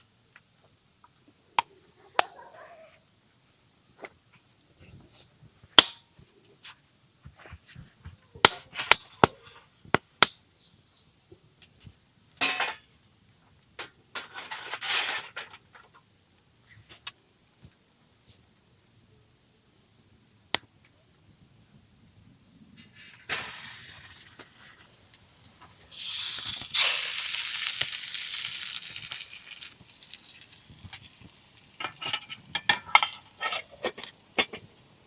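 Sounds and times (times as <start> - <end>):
rustling or scraping: 22.8 - 34.7.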